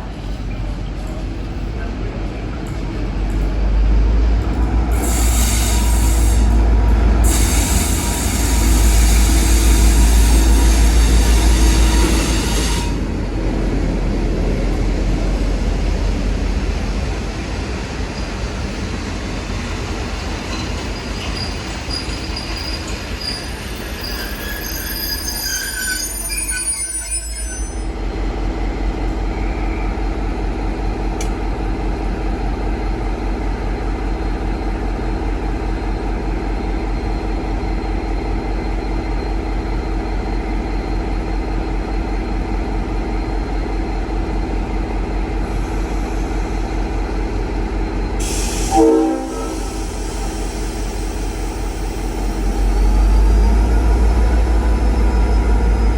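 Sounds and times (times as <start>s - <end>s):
train rumble with low hum: 0.0s - 55.9s
train wheels squealing: 5.0s - 13.3s, 19.7s - 28.0s, 28.9s - 30.4s, 35.7s - 55.9s
train horn blast: 48.5s - 49.9s.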